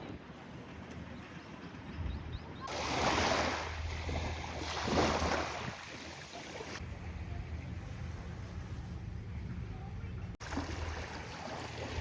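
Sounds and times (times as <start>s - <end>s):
sea waves washing ashore: 2.6s - 9.4s, 10.4s - 12.0s.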